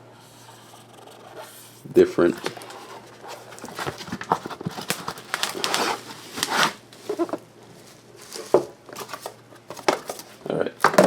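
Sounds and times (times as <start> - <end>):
packaging rustling: 2.3 - 11.0.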